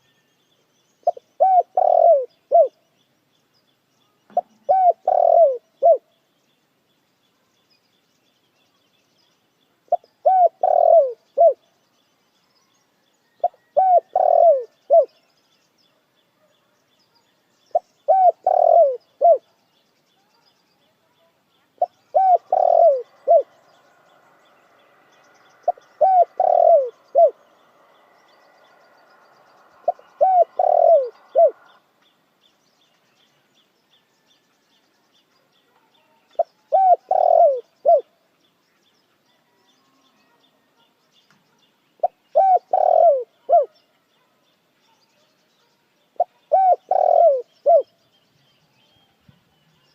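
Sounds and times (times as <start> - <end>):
dove cooing: 1.0 - 2.8, 4.4 - 6.1, 9.9 - 11.6, 13.4 - 15.2, 17.7 - 19.5, 21.8 - 23.6, 25.6 - 27.4, 29.8 - 31.8, 36.4 - 38.1, 42.0 - 43.8, 46.2 - 47.9.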